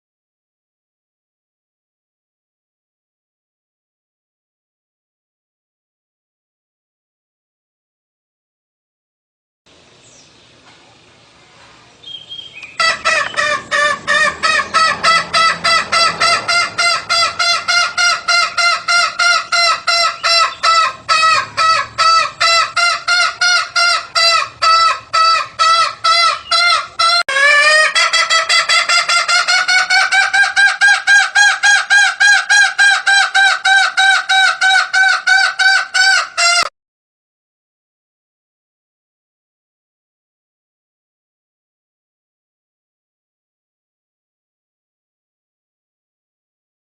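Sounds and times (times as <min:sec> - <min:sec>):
junglefowl calls: 0:12.0 - 0:36.7.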